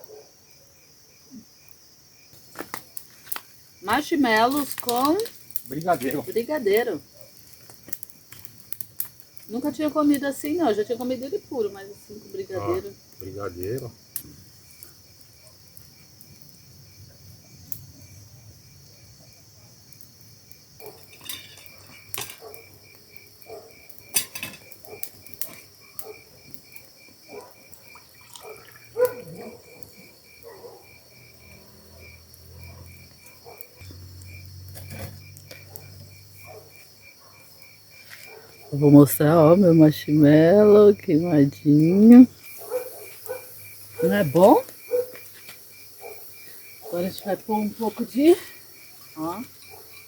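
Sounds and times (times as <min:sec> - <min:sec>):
crickets buzzing: 0:00.0 - 0:50.0
dishes and cutlery clinking: 0:20.9 - 0:22.5, 0:24.1 - 0:24.7.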